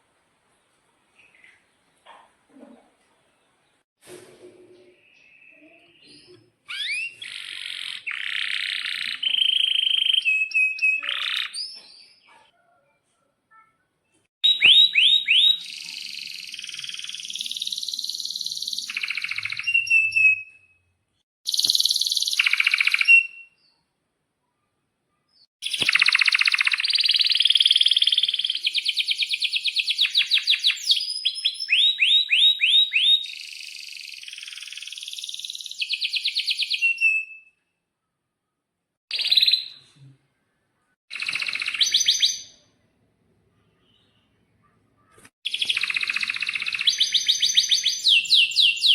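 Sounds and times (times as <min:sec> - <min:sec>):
canary singing trills and chirps: 0:05.0 - 0:12.5, 0:14.4 - 0:20.9, 0:21.5 - 0:23.9, 0:25.4 - 0:37.6, 0:41.1 - 0:42.7, 0:43.6 - 0:48.9.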